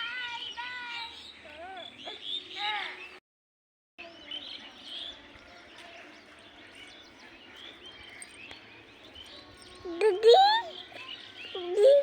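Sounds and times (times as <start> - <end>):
small birds chirping: 0.0 - 3.2, 4.0 - 12.0.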